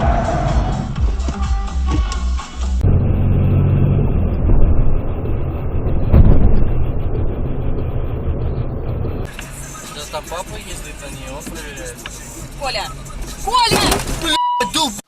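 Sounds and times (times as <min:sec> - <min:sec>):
car engine and road noise: 0:00.0 - 0:15.0
loud thump: 0:03.9 - 0:09.3.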